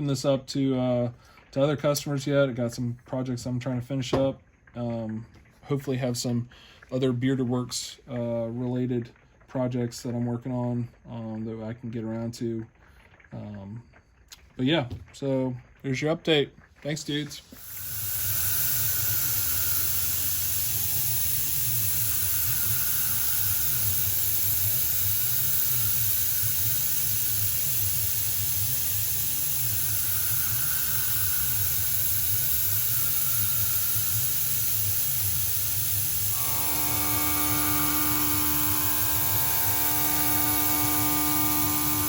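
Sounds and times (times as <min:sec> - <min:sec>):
steady humming tones: 0:17.0 - 0:42.0
milling machine whirring: 0:17.3 - 0:42.0.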